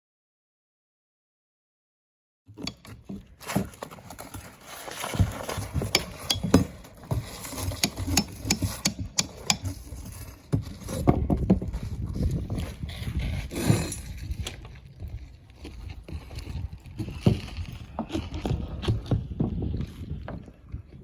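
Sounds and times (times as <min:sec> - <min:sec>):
knocks taps and thumps: 0:05.8 - 0:06.8, 0:07.7 - 0:09.8.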